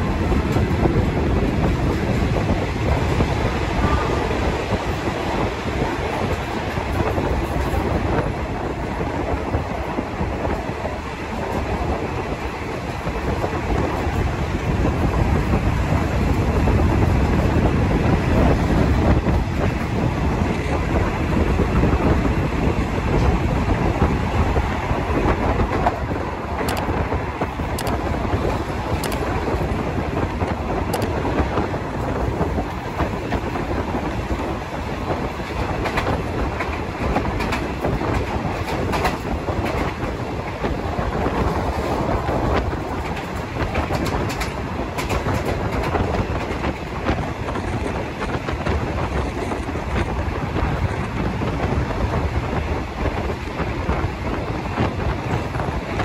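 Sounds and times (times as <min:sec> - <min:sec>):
train wheels rumbling on rails: 0:00.0 - 0:56.0
wheels clicking over track: 0:25.0 - 0:52.6.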